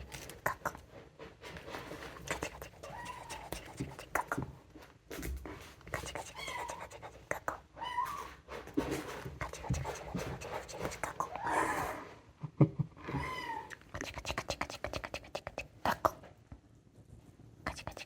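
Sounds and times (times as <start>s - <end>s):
clicks and scratching of play: 0.0s - 11.4s
kittens meowing: 2.8s - 3.6s, 6.2s - 7.1s, 7.8s - 8.4s, 13.1s - 13.8s.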